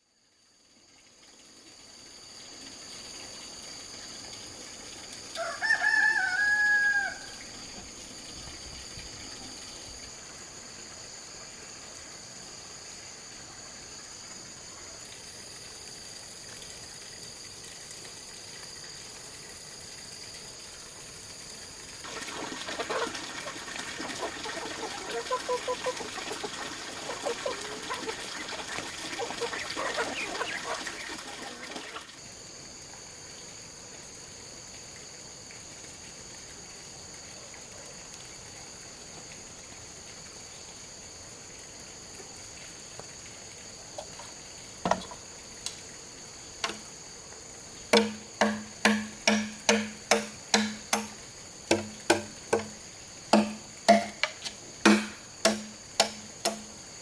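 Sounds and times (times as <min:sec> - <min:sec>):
high insect drone: 0:00.0 - 0:22.8, 0:38.2 - 0:57.0
water pouring and splashing: 0:00.6 - 0:11.2, 0:11.9 - 0:57.0
blade chopping hollow bamboo: 0:44.9 - 0:45.2, 0:46.6 - 0:46.9, 0:47.9 - 0:56.8.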